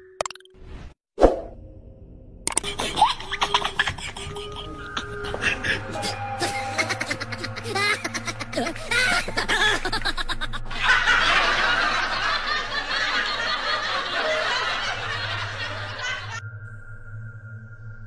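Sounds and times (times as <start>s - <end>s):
shrill cackling laughter: 2.6s - 16.4s.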